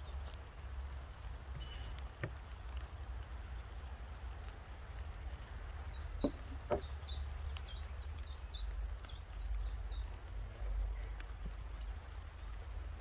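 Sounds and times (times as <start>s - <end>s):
songbird chirping: 0.0s - 0.4s, 1.6s - 13.0s
sharp knocks: 6.2s - 6.9s.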